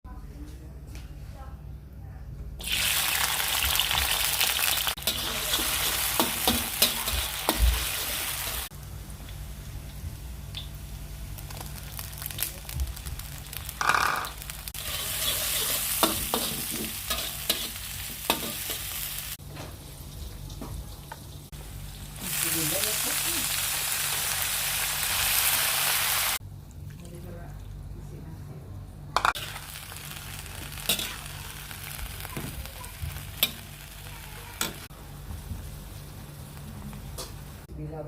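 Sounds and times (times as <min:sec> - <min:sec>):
food sizzling in a hot pan: 0:02.6 - 0:08.7, 0:10.5 - 0:20.2, 0:20.8 - 0:26.4, 0:29.4 - 0:34.9.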